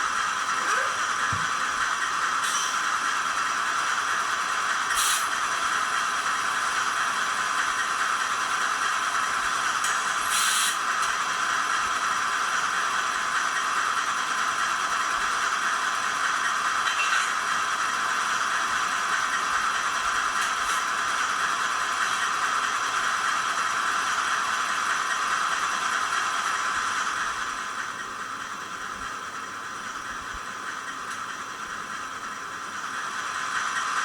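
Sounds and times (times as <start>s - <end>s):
diesel engine sound from small speaker: 0.0s - 34.0s
air hiss bursts: 4.9s - 5.3s, 10.2s - 10.8s.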